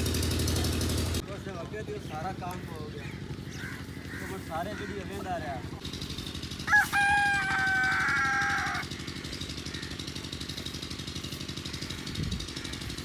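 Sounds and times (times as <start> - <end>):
rooster crowing: 6.5 - 9.2.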